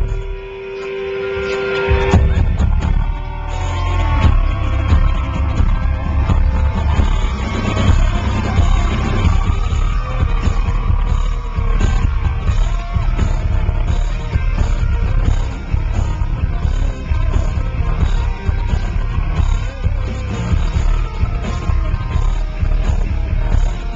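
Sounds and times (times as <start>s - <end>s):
rock band playing live: 0.0s - 23.9s.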